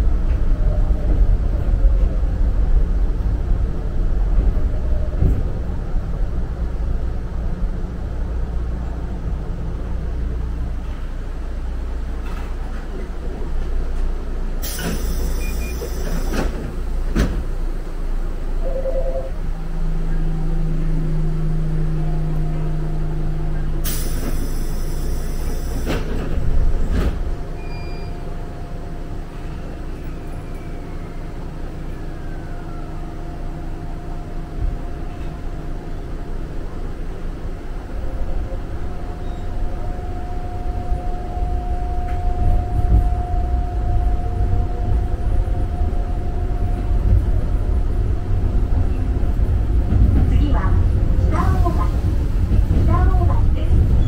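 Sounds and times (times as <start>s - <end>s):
train wheel rumble: 0.0s - 54.0s
train motor whine: 18.6s - 28.5s.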